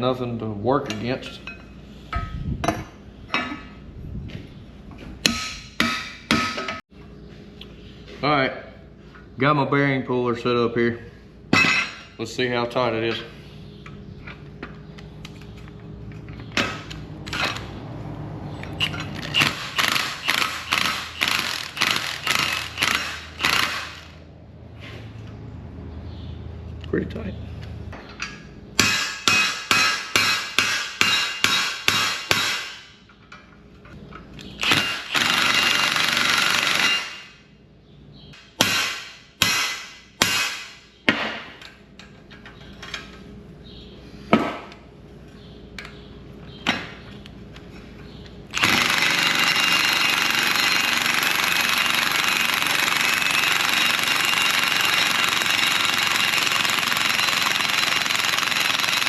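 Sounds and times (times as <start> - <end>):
impact wrench hammering: 5.2 - 6.8, 18.8 - 24.2, 28.8 - 32.9, 34.6 - 37.3, 38.4 - 41.5, 48.5 - 59.0.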